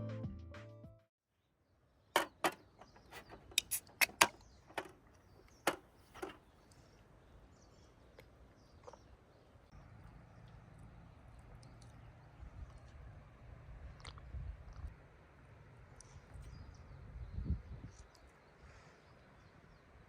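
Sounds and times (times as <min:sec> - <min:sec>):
outdoor background: 0:00.0 - 0:20.0
sharp clicks and knocks: 0:02.2 - 0:06.4.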